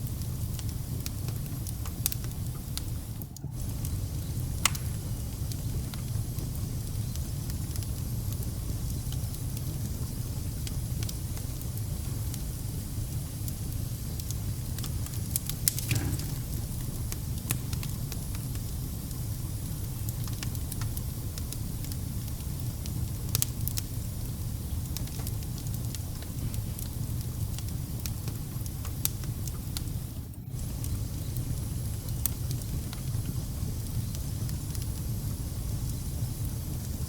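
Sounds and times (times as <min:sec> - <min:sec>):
fire crackling and popping: 0:00.0 - 0:37.0
wood fire rumbling: 0:00.0 - 0:37.0.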